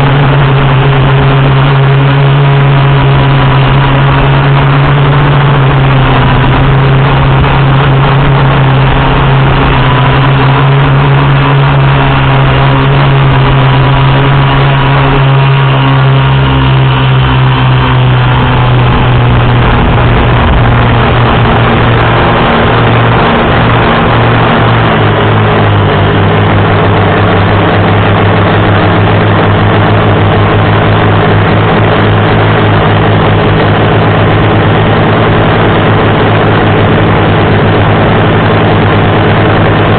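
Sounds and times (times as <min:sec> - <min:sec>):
noisy air rush: 0:00.0 - 0:39.9
quadcopter motors buzzing: 0:00.0 - 0:39.9.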